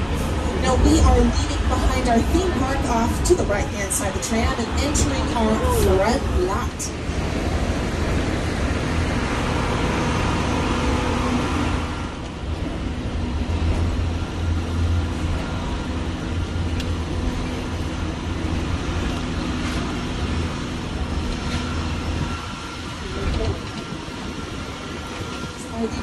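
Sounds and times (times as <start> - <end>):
tram rumbling along: 0.0 - 26.0.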